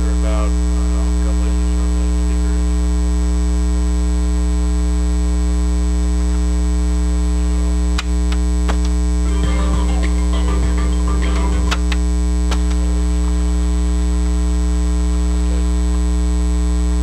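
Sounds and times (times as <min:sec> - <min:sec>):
electrical mains hum: 0:00.0 - 0:17.0
high whine: 0:00.0 - 0:17.0
faint music: 0:09.2 - 0:12.0
sharp clicks: 0:11.6 - 0:12.8.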